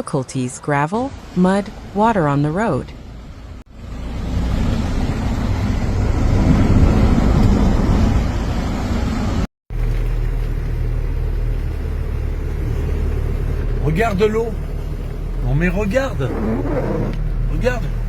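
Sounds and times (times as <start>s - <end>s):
car engine hum: 3.0s - 18.0s
water wash and tyre noise: 3.2s - 18.0s.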